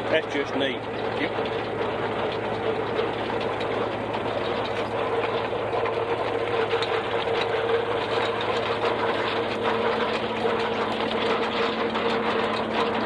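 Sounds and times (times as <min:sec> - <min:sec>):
silage chopper whirring and rattling: 0:00.0 - 0:13.0
tractor running: 0:00.0 - 0:13.0.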